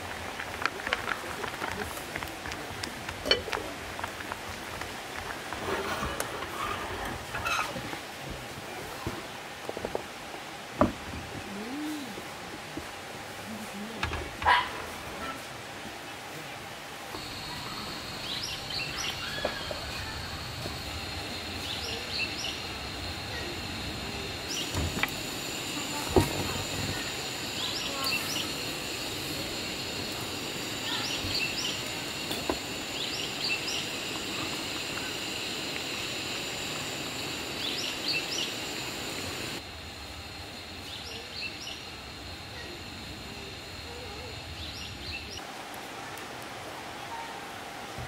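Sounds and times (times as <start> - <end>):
high insect drone: 16.9 - 45.5.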